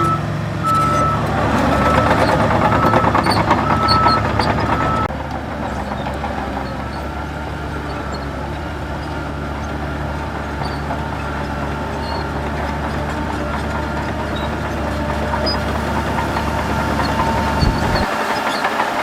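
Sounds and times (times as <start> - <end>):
reversing beeper: 0.0 - 5.1, 15.1 - 18.1
heavy diesel engine droning: 0.0 - 19.0.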